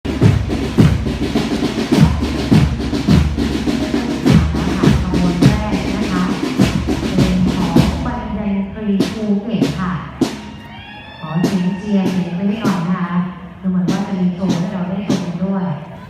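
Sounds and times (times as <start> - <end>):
bass drum striking steadily: 0.0 - 8.4
snare drum strokes and rolls: 0.0 - 10.7, 11.3 - 13.1.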